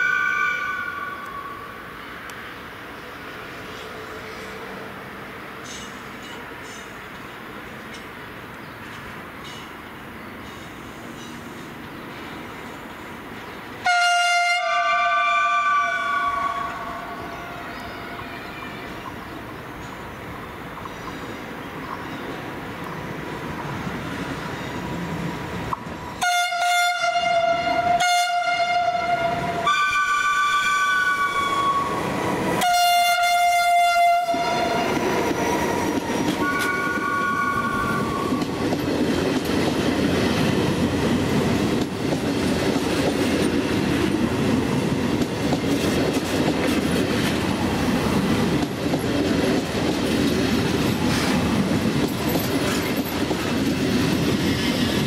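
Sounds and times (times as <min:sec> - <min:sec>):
passenger train rumbling past: 0:00.0 - 0:55.0
two-tone train horn blasts: 0:13.8 - 0:19.0, 0:26.2 - 0:32.0, 0:32.6 - 0:35.0, 0:36.3 - 0:38.5.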